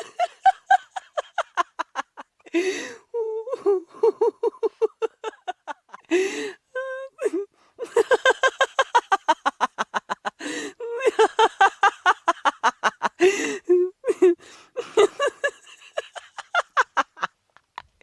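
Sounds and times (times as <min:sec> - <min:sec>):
person laughing hard: 0:00.0 - 0:06.5, 0:07.1 - 0:17.3
gasping in-breaths: 0:02.4 - 0:03.2, 0:06.0 - 0:06.7, 0:10.4 - 0:10.8, 0:13.2 - 0:13.7, 0:14.4 - 0:14.9.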